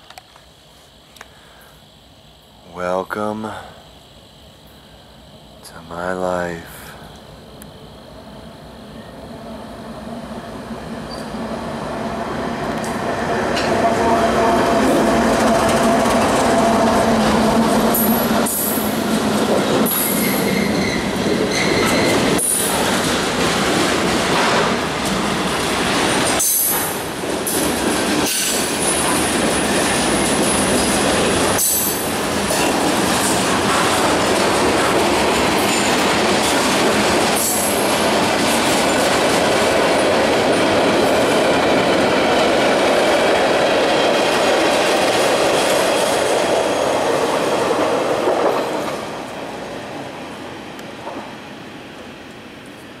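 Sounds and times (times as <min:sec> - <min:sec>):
train wheels rumbling on rails: 0:08.3 - 0:53.0
high-pitched wheel squeal: 0:19.9 - 0:22.4.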